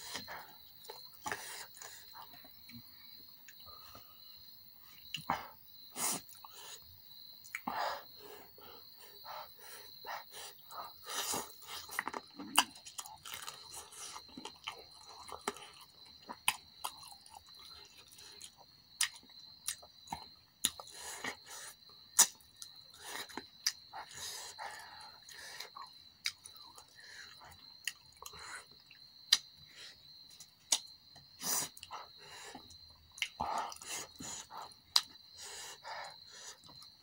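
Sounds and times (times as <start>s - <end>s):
chewing and lip smacks: 6.2s - 7.8s, 10.2s - 21.4s, 22.2s - 29.6s, 31.5s - 37.0s.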